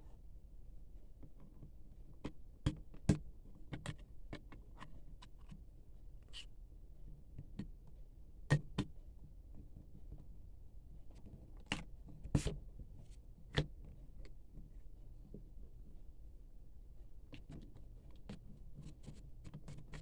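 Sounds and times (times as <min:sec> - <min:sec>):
clicks and taps of handled items: 0:02.2 - 0:05.6, 0:08.5 - 0:09.0.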